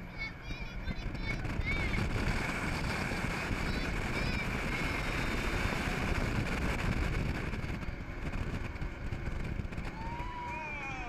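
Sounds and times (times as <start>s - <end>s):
jet boat engine rumble: 0.0s - 11.0s
wind: 0.0s - 11.0s.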